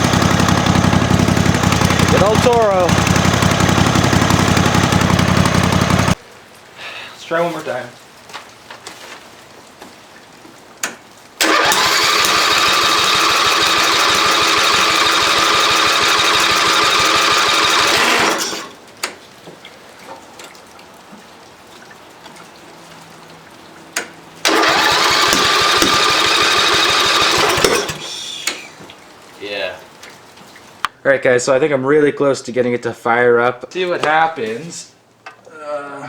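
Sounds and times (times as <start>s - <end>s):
mower engine cranking: 0.0s - 6.2s, 11.4s - 18.8s, 24.4s - 28.8s
starter click: 24.5s - 28.7s.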